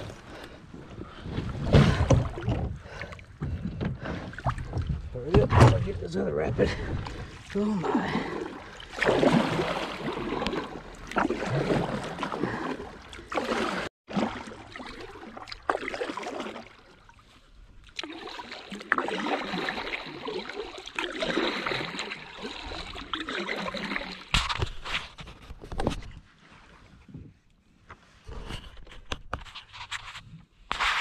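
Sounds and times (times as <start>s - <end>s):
water rushing around a kayak: 0.0s - 28.8s.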